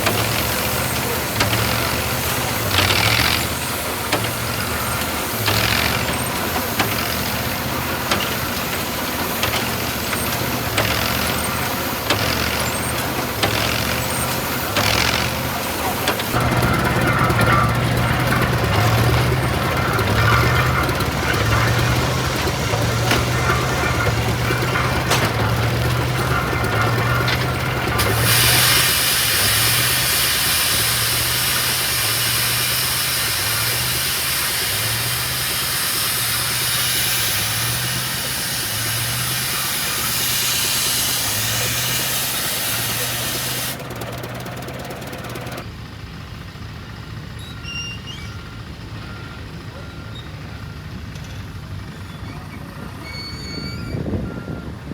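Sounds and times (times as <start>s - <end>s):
engine slow even beat: 0.0s - 45.6s
loud hiss: 21.2s - 43.8s.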